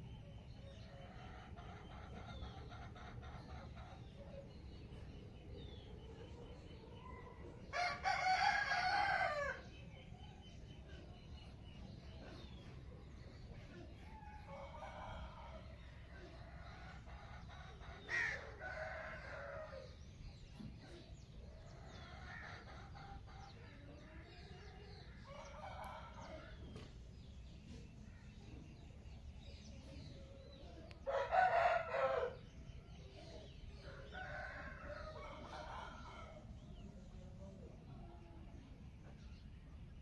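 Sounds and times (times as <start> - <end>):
roosters crowing: 7.7 - 9.7, 16.9 - 20.0, 31.0 - 32.7, 33.8 - 36.6.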